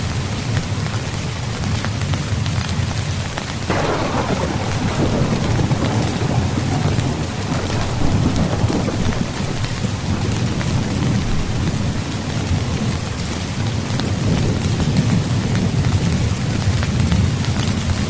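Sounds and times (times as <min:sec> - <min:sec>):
rain falling on a tent: 0:00.0 - 0:18.0
thunder rumbling: 0:03.7 - 0:16.1.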